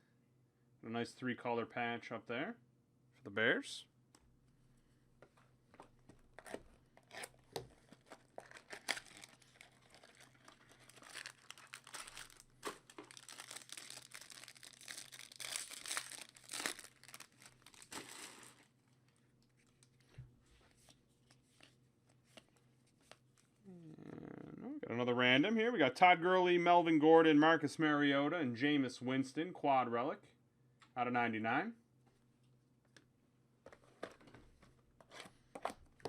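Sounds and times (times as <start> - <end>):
wrapper crinkling and tearing: 6.4 - 18.7.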